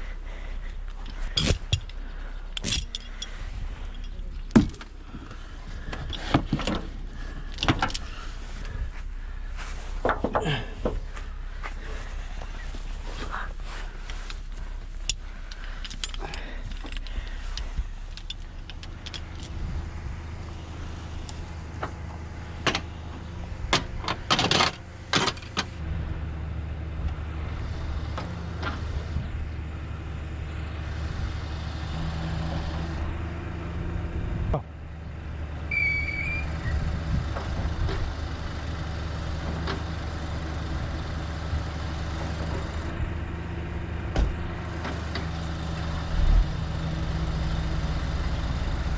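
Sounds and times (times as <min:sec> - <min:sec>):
diesel engine idling: 0:00.0 - 0:48.9
metal clanks and rattles: 0:00.9 - 0:08.6, 0:14.0 - 0:19.6, 0:21.3 - 0:25.8.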